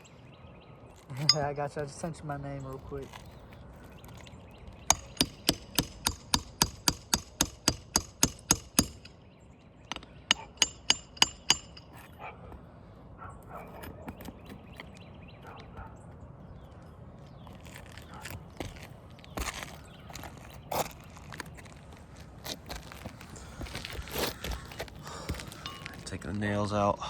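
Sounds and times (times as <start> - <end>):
hammer striking metal: 9.9 - 12.1
scraping: 17.4 - 26.4.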